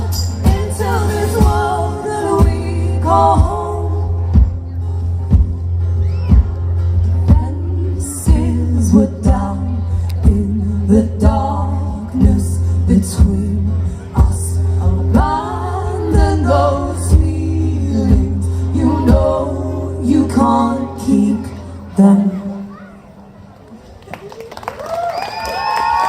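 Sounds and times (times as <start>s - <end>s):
person singing: 0.0s - 4.3s, 7.3s - 22.5s.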